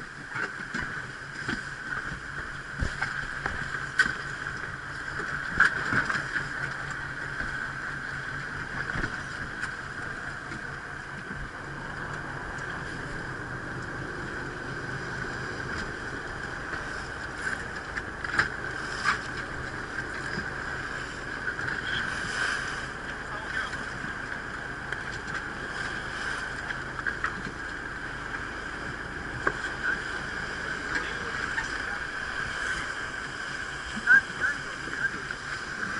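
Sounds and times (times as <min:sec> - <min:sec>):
boat engine drone: 0:00.0 - 0:35.9
water noise: 0:00.0 - 0:35.9
wind: 0:00.0 - 0:35.9.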